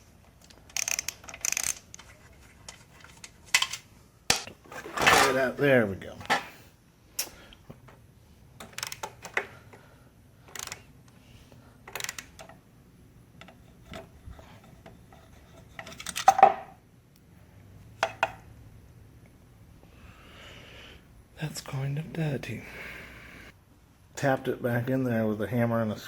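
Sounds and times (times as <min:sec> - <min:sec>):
metal parts clicking and clinking: 0:00.3 - 0:05.4, 0:08.6 - 0:09.4, 0:10.5 - 0:10.9, 0:11.9 - 0:12.6, 0:15.5 - 0:16.7.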